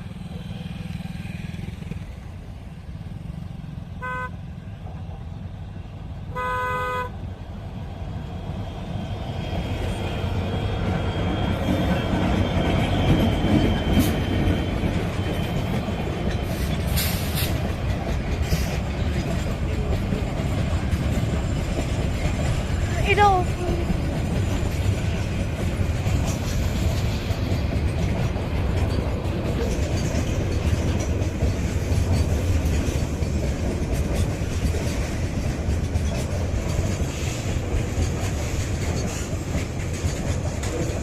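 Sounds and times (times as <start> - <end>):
rumble of goods train: 0.0 - 41.0
train horn: 4.0 - 4.4, 6.3 - 7.2.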